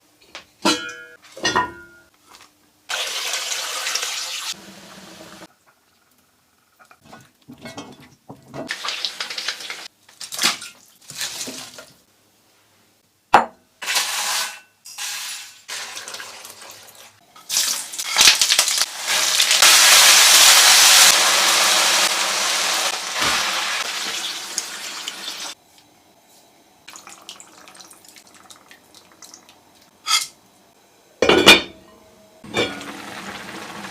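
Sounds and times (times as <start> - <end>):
dishes and utensils clinking: 0.6 - 2.1, 6.8 - 8.7, 30.0 - 30.4, 31.2 - 32.9
kitchen tap running: 26.9 - 29.6.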